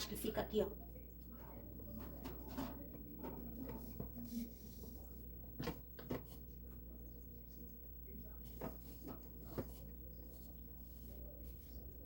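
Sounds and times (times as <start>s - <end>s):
low steady hum: 0.0s - 12.0s
household items handled on counter: 1.8s - 6.5s, 8.4s - 12.0s.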